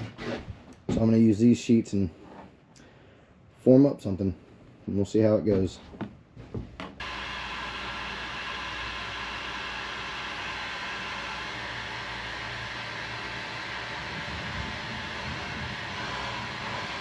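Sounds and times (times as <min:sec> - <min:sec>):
heat gun blowing air: 0:07.0 - 0:17.0.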